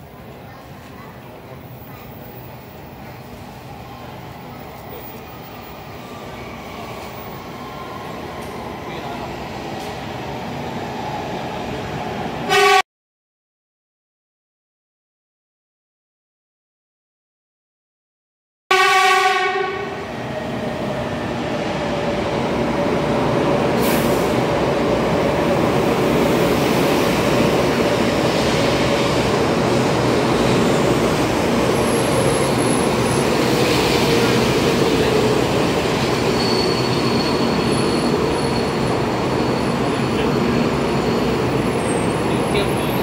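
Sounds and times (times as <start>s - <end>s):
train rushing along platform: 0.0s - 12.8s, 18.7s - 43.0s
train horn blast: 12.5s - 12.8s, 18.7s - 20.0s.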